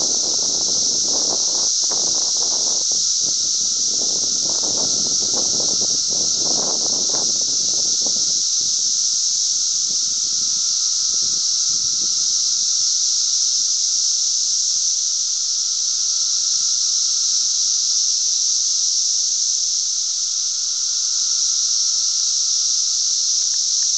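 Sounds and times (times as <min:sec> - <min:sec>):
cicadas droning: 0:00.0 - 0:23.9.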